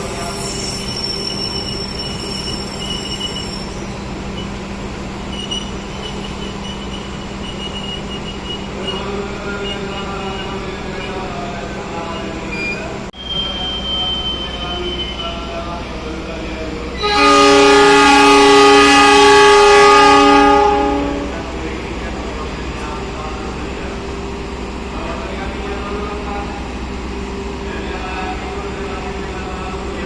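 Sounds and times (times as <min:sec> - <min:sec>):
train wheels squealing: 0:00.0 - 0:15.8
train engine hum: 0:00.0 - 0:30.0.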